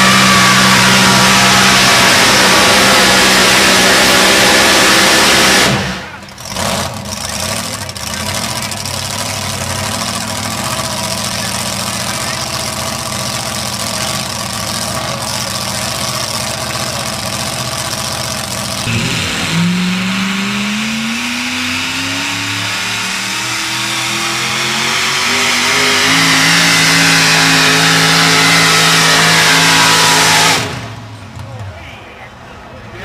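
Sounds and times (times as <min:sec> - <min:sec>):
truck engine revving under load: 0:00.0 - 0:11.2, 0:12.2 - 0:31.4.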